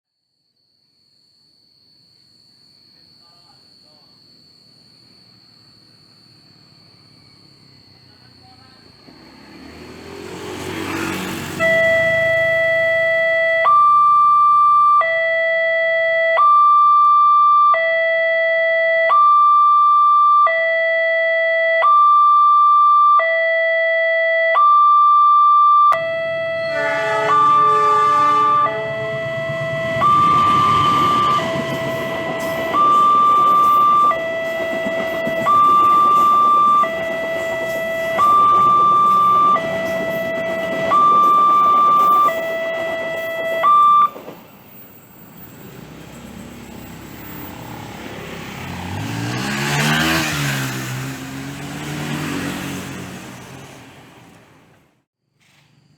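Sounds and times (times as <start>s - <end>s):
level crossing two-tone alarm: 11.3s - 44.2s
horn-like chord: 26.0s - 32.6s.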